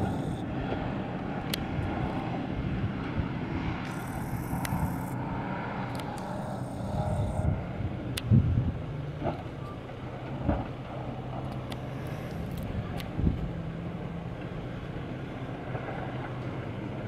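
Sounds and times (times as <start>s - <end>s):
engine and tyres on gravel: 0.0s - 17.0s
sharp ticks: 3.8s - 5.2s, 5.9s - 7.4s.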